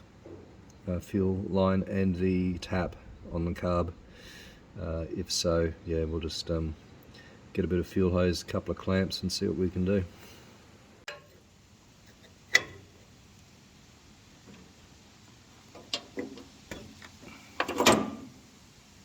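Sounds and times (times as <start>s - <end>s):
metal tools clinking: 15.8s - 18.2s.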